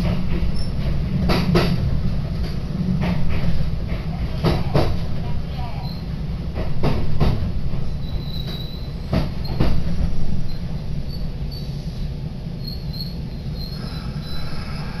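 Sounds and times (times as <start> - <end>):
train wheels rumbling on rail: 0.0 - 15.0
faint high squeaks: 12.6 - 15.0.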